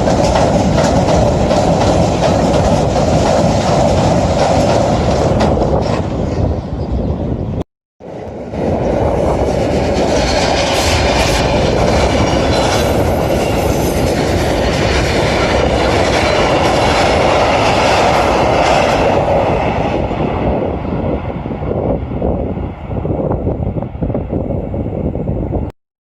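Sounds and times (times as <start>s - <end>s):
wheels clickety-clack: 0.0s - 6.1s
train rumbling past on rails: 0.0s - 25.7s.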